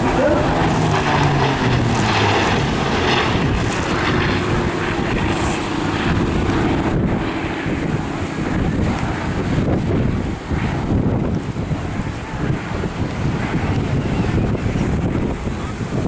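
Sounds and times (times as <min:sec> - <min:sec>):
aircraft engine running: 0:00.0 - 0:16.0
wind buffeting microphone: 0:00.0 - 0:16.0.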